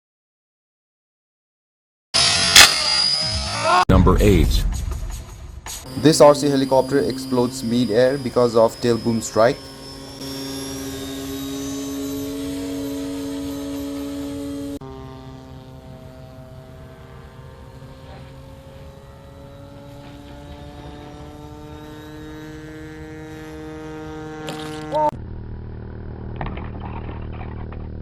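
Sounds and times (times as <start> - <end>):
low steady hum: 5.8 - 24.3
helicopter motor and rotor whine: 5.8 - 28.0.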